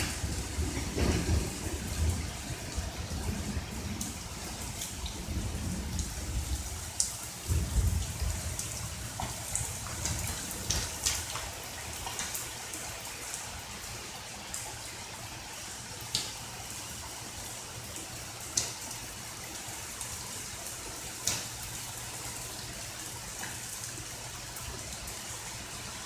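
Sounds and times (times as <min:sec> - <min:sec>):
low thunder rumble: 0:00.0 - 0:11.3
raindrops ticking: 0:00.0 - 0:13.1, 0:20.6 - 0:22.4
steady rain: 0:00.0 - 0:26.0.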